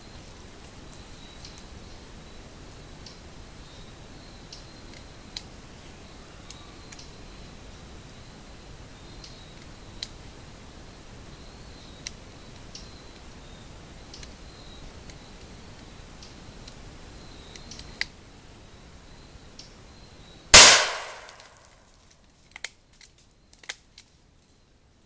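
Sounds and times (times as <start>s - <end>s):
gunshot: 20.6s - 21.6s.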